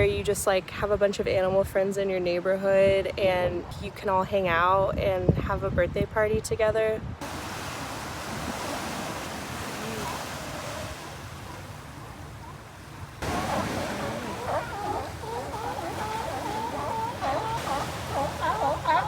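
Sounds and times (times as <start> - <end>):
birds calling: 7.2 - 19.0
ocean surf washing: 7.2 - 19.0.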